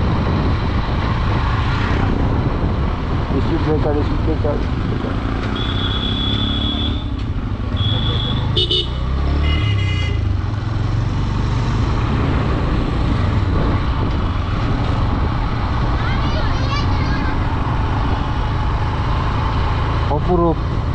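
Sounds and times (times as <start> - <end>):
wind rumble: 0.0 - 6.4, 10.1 - 20.0, 20.6 - 20.9
motorcycle engine running: 4.2 - 20.9.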